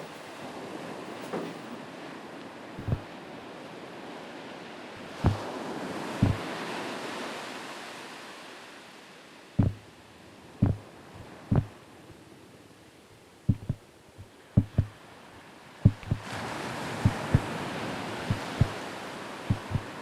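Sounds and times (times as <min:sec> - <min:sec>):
short deep thumps: 0:02.8 - 0:03.0, 0:05.0 - 0:05.4, 0:06.2 - 0:06.4, 0:09.6 - 0:09.8, 0:10.6 - 0:10.8, 0:11.5 - 0:11.7, 0:13.5 - 0:13.8, 0:14.6 - 0:14.9, 0:15.8 - 0:16.2, 0:17.0 - 0:17.5, 0:18.3 - 0:18.8, 0:19.5 - 0:19.9
rushing wind-like noise: 0:06.2 - 0:06.4, 0:15.8 - 0:16.3, 0:18.3 - 0:18.9, 0:19.5 - 0:20.0.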